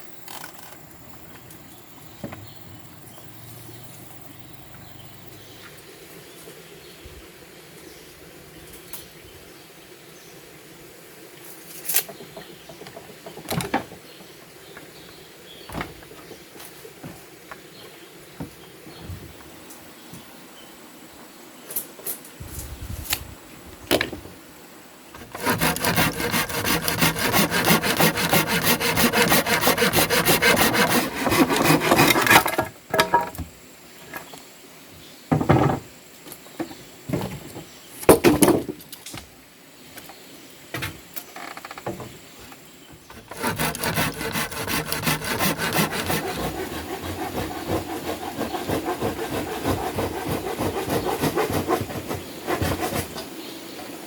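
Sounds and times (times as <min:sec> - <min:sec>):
hand saw cutting wood: 0:25.2 - 0:32.6, 0:43.1 - 0:53.3.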